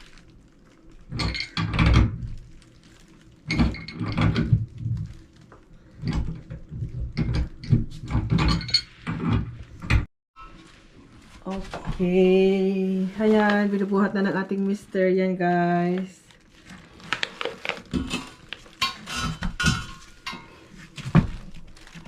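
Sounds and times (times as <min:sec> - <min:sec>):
tools knocking and scraping: 0:18.0 - 0:20.5.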